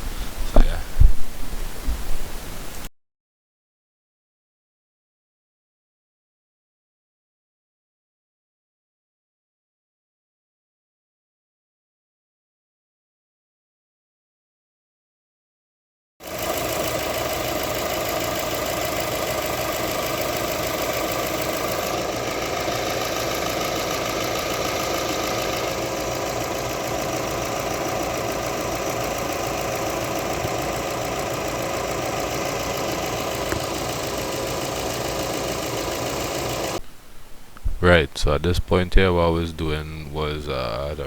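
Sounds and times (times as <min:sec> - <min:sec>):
car engine idling: 0:16.2 - 0:36.8.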